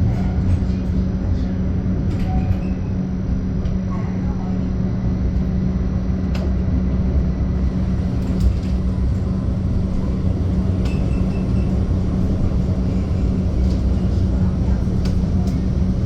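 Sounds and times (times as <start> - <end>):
tram motor hum: 0.0 - 16.0
tram wheels rumbling on rail: 0.0 - 16.0.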